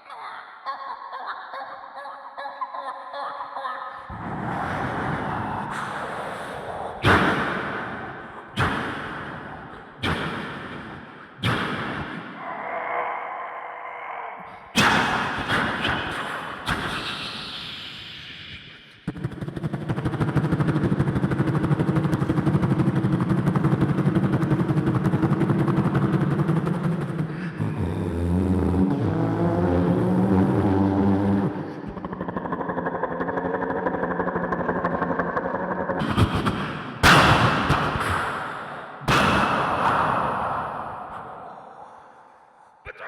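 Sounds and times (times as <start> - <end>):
mimicked explosion blasts: 4.1 - 10.9
shifting pitched drone: 19.6 - 36.0.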